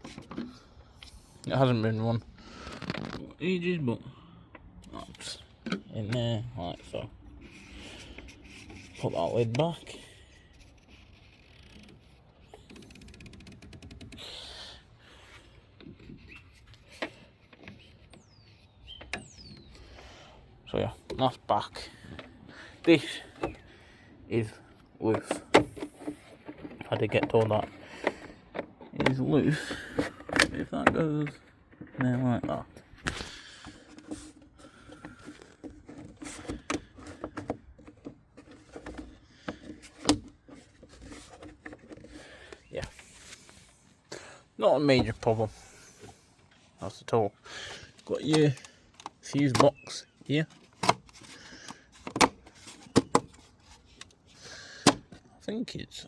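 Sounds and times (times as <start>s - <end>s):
sharp plastic clicks and knocks: 11.5s - 14.4s, 47.9s - 54.2s
plastic cap being screwed on: 25.1s - 43.7s.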